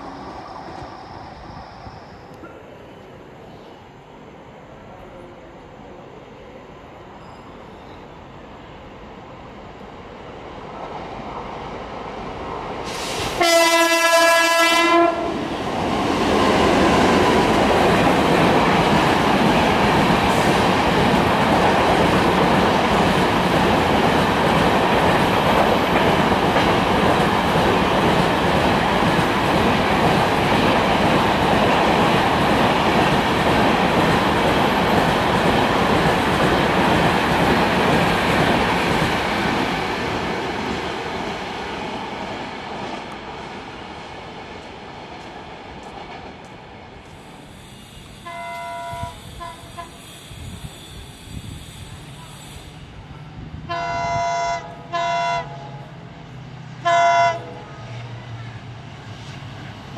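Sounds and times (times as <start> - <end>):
train horn: 13.4 - 15.4, 48.2 - 50.0, 53.6 - 56.0, 56.8 - 58.1
wheels on rail clickety-clack: 15.6 - 43.4.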